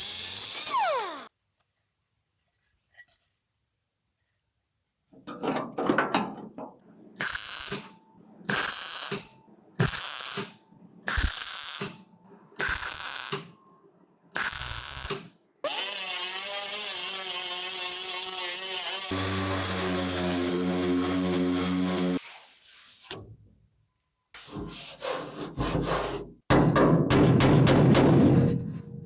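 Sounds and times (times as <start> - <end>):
hand tool rasping over metal: 15.7 - 22.2.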